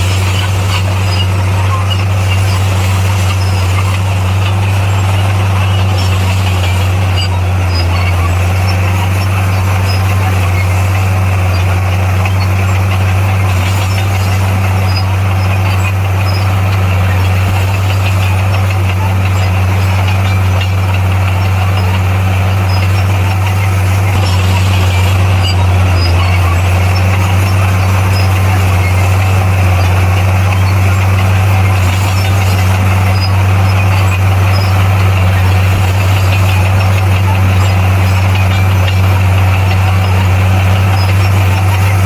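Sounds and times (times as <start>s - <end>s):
heavy diesel engine running: 0.0s - 42.0s
noisy rattle: 0.0s - 42.0s.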